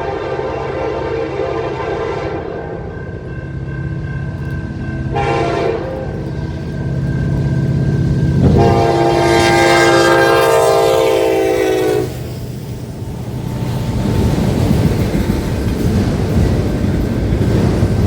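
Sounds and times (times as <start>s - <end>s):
locomotive air horn blast: 0.0s - 2.7s, 5.1s - 6.1s, 8.4s - 12.3s
passing train rumble: 0.0s - 18.0s.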